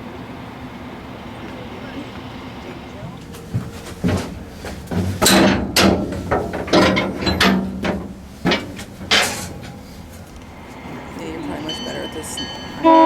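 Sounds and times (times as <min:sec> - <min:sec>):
metallic clanks and bangs: 0:03.0 - 0:10.4.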